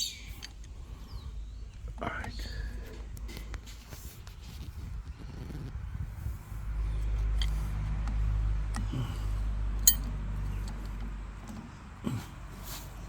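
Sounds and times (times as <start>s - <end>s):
low steady rumble: 4.9s - 11.3s
sharp metallic clink: 9.8s - 10.1s
light metal taps: 9.9s - 11.6s.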